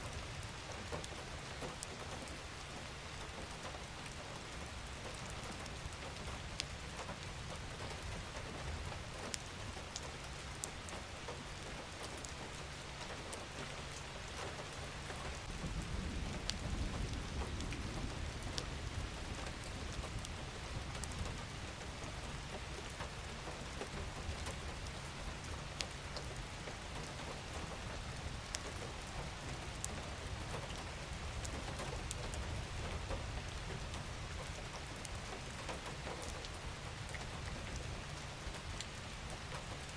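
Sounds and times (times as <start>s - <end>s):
gentle rain falling: 0.0s - 39.9s.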